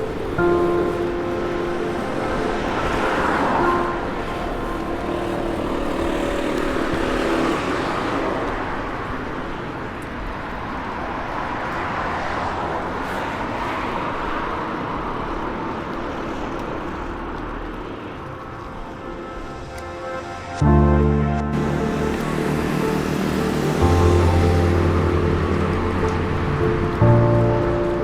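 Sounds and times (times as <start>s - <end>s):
cars passing by: 0.0s - 28.0s.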